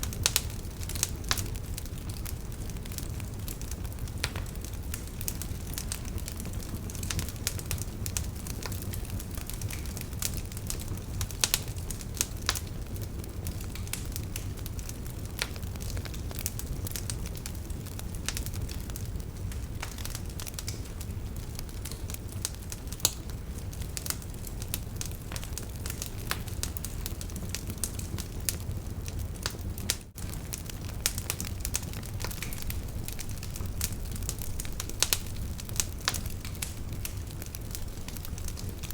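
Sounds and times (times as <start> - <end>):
fire crackling and popping: 0.0 - 38.9
fire flames rumbling: 0.0 - 38.9.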